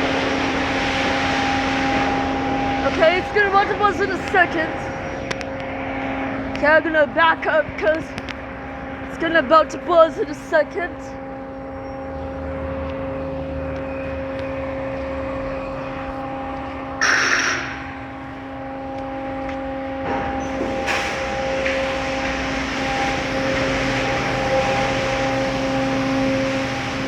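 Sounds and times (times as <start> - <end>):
car wash machinery humming: 0.0 - 27.0
rushing hiss of spray: 17.0 - 17.8
short loud hiss: 17.0 - 17.8.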